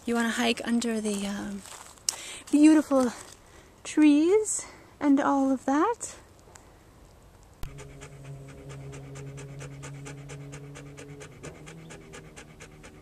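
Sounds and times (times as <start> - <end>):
dog panting rapidly: 7.6 - 13.0
steady low hum: 7.6 - 13.0.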